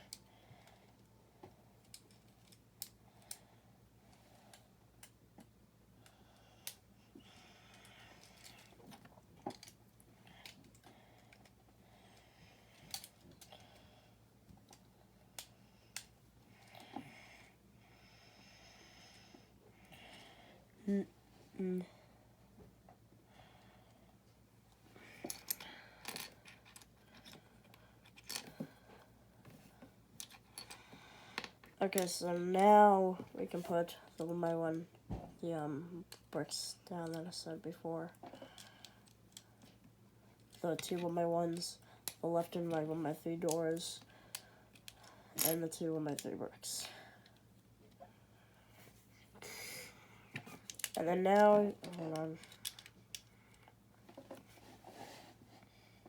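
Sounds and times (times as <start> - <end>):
soft rustle: 54.0 - 56.0.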